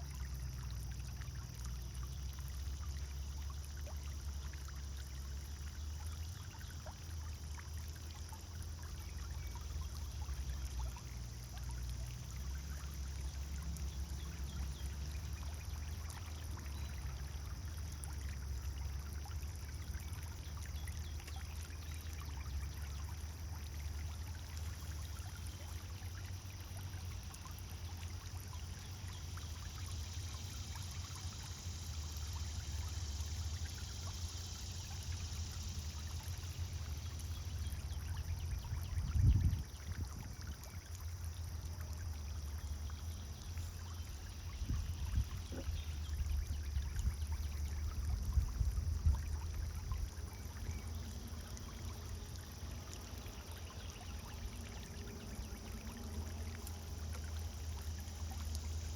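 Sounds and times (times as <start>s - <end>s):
fountain water splashing: 0.0s - 58.9s
steady low hum: 0.0s - 58.9s.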